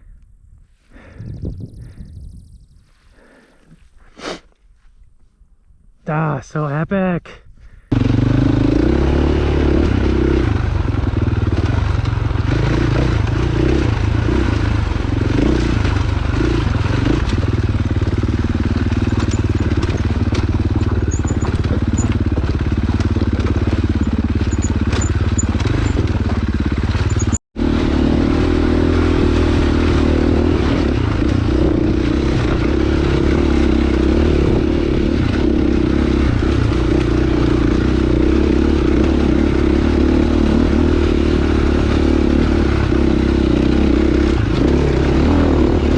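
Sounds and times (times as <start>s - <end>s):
dirt bike engine running: 7.8s - 45.9s
rattling and scraping: 15.8s - 27.4s.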